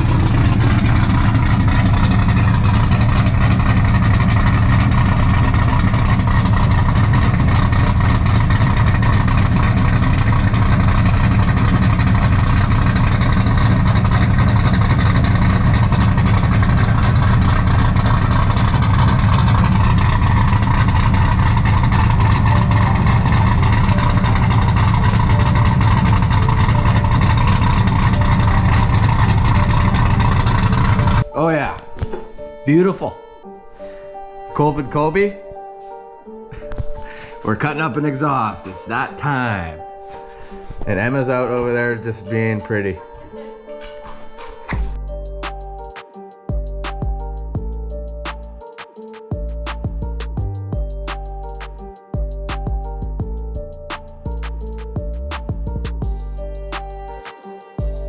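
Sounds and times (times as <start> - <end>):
engine running steadily: 0.0 - 31.3, 44.7 - 48.6, 49.2 - 58.0.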